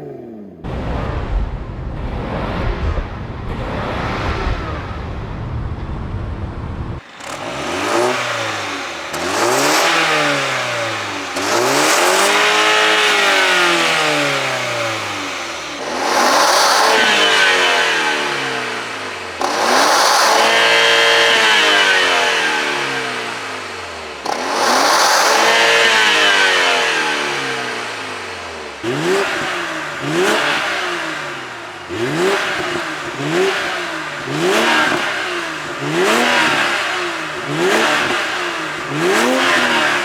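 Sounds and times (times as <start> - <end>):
rough low engine rumble: 0.0 - 16.4
car engine revving: 0.0 - 40.0.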